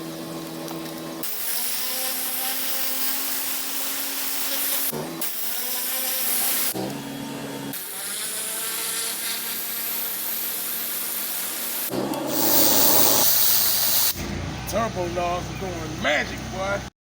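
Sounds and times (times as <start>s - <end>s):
pressure washer water hiss: 11.7s - 14.2s
pressure washer engine hum: 11.9s - 14.2s.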